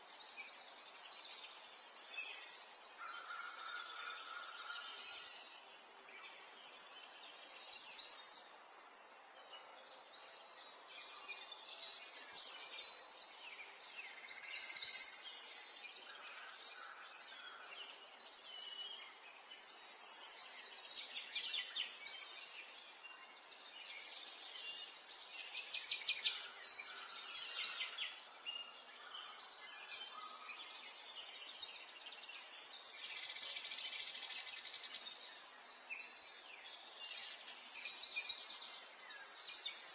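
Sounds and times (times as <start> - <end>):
songbirds trilling: 0.0 - 13.0, 13.6 - 39.9.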